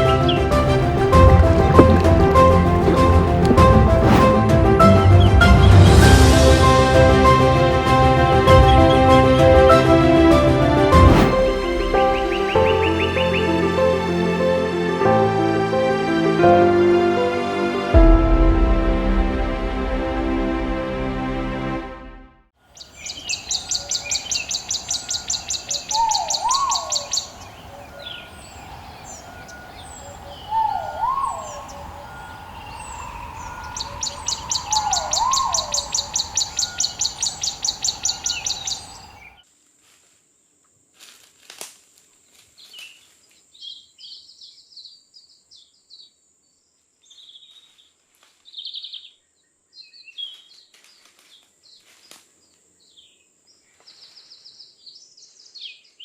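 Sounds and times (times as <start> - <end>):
rapid high pulsing bird call: 22.8 - 39.4
rising whistled bird call: 23.0 - 39.4.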